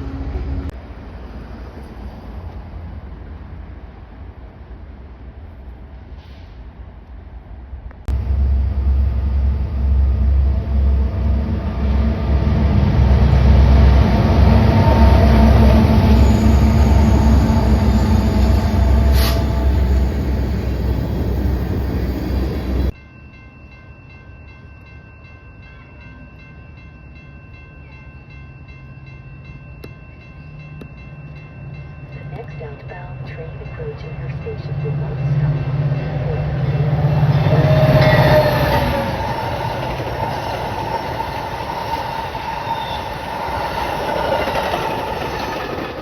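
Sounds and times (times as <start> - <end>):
train passing with rail noise: 0.0 - 46.0
faint steady tones: 27.8 - 43.6.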